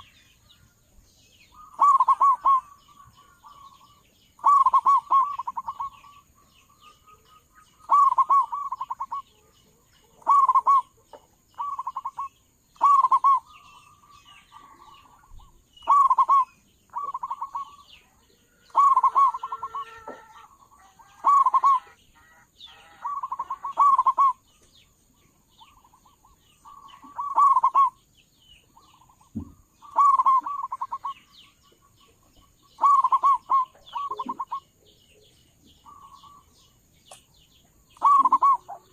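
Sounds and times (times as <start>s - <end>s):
dove cooing: 1.6s - 6.2s, 7.0s - 17.9s, 18.5s - 24.4s, 25.6s - 28.0s, 29.3s - 31.2s, 32.7s - 34.7s, 38.0s - 38.9s.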